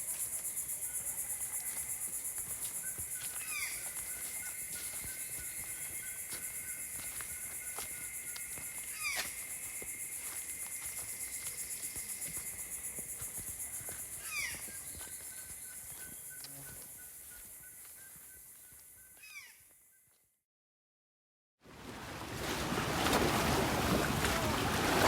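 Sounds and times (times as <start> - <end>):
high insect chorus: 0.0 - 19.6.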